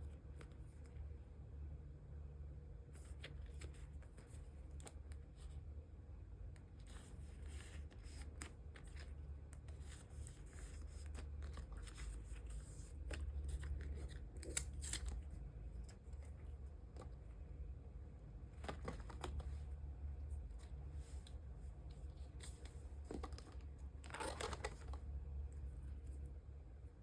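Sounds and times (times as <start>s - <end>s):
steady low hum: 0.0s - 27.0s
plastic card sleeves rustling: 6.8s - 17.3s, 18.5s - 25.1s
plastic crinkling: 21.9s - 25.1s.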